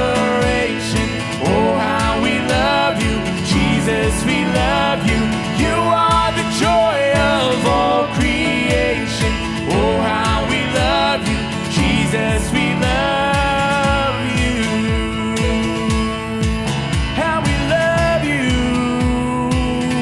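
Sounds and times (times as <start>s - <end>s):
live band playing: 0.0s - 20.0s
steady drum beat: 0.0s - 20.0s.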